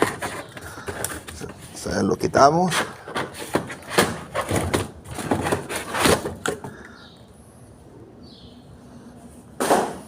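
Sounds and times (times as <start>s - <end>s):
cardboard scraping and rustling: 0.0s - 6.7s.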